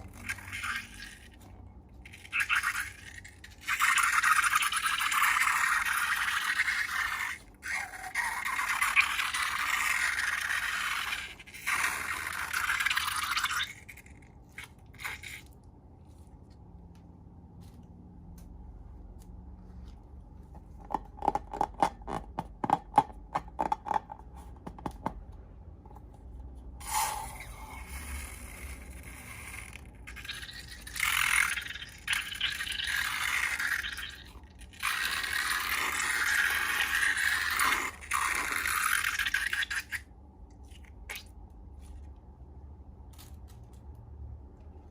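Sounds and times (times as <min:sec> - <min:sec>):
slime being scraped: 0:26.8 - 0:40.0.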